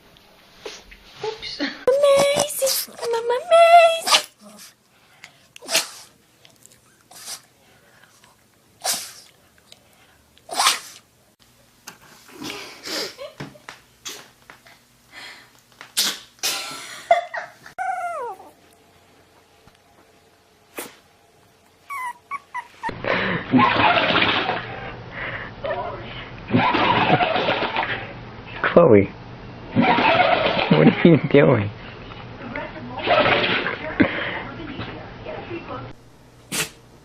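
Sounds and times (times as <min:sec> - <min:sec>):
dog sneezing: 0:04.0 - 0:04.8, 0:05.6 - 0:06.2, 0:07.1 - 0:07.5, 0:08.8 - 0:09.3, 0:10.5 - 0:11.1, 0:15.9 - 0:16.8, 0:20.7 - 0:21.0, 0:36.5 - 0:36.8
dog whining: 0:17.8 - 0:18.7, 0:21.8 - 0:23.0.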